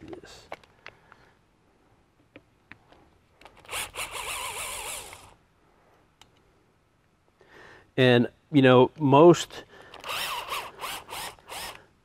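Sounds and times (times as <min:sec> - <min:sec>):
cordless drill running: 0:03.6 - 0:05.4, 0:09.9 - 0:11.9.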